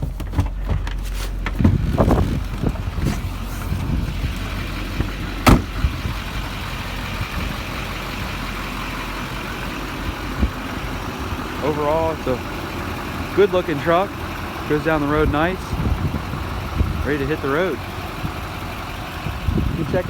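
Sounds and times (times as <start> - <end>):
diesel engine idling: 0.0 - 20.0
sharp knock: 5.5 - 5.7.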